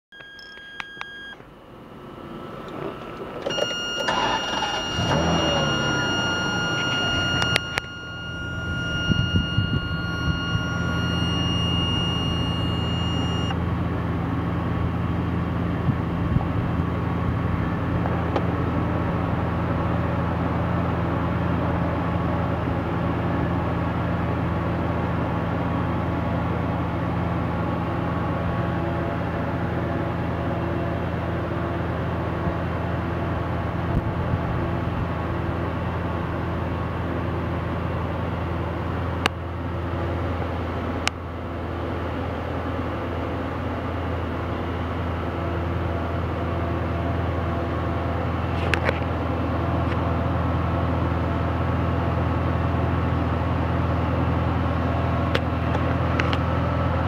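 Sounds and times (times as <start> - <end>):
car engine starting and idling: 0.2 - 57.0
steady high electronic tone: 3.5 - 13.5.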